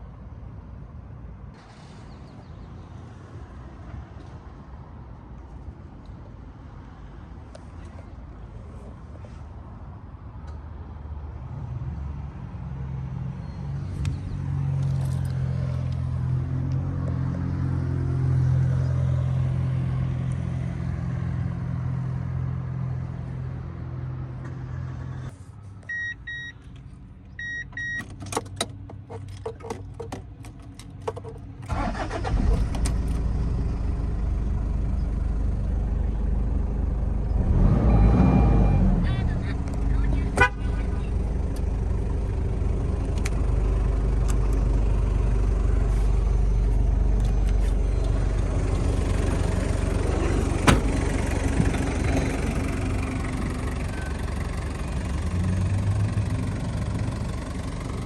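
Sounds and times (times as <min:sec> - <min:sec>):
short beeps: 0:25.9 - 0:26.6, 0:27.4 - 0:28.0
diesel engine running: 0:29.2 - 0:58.0.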